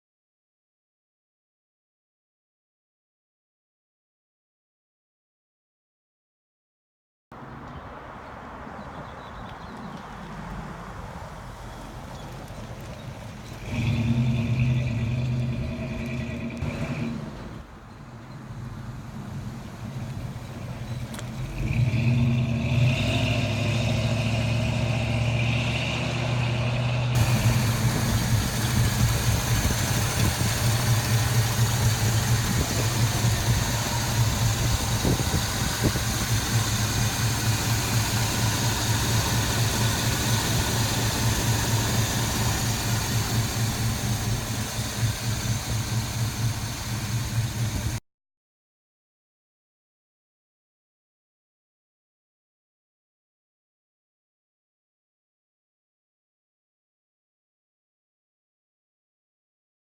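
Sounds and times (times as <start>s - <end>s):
truck engine rumbling: 7.4s - 48.0s.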